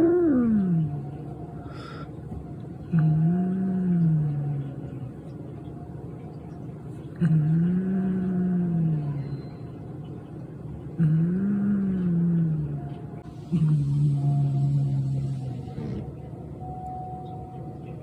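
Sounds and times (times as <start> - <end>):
cat growling: 13.5 - 16.1.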